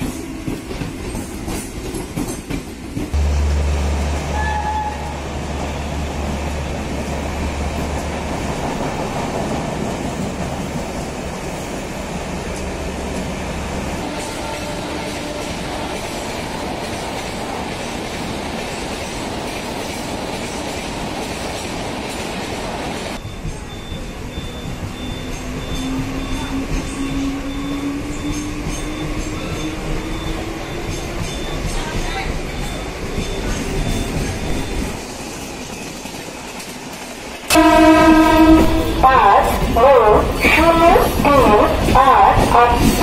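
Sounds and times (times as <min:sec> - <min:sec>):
train wheels on rails: 0:00.0 - 0:43.0
train horn: 0:03.2 - 0:05.2, 0:14.0 - 0:16.8, 0:37.5 - 0:43.0.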